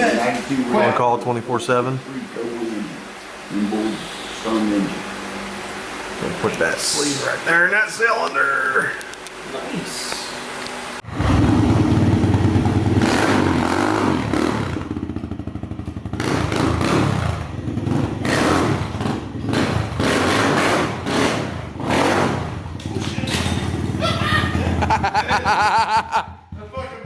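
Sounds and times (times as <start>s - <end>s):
dirt bike engines revving: 11.0s - 27.0s.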